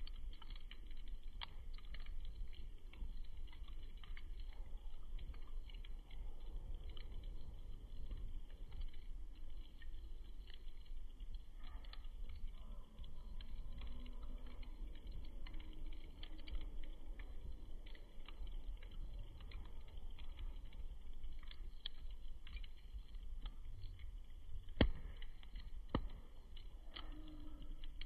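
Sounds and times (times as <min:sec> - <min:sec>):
campfire crackling: 0:00.0 - 0:28.0
sharp fire pop: 0:24.8 - 0:26.3.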